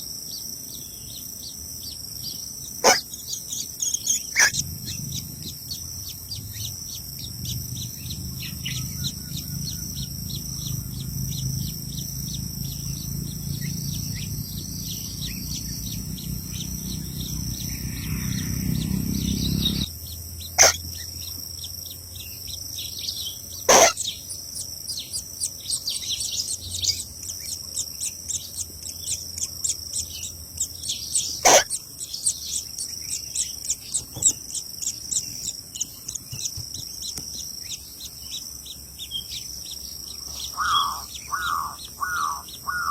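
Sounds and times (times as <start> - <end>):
bird chirps: 0.0 - 42.9
insects droning: 0.0 - 42.9
loud sharp sounds: 31.4 - 31.7.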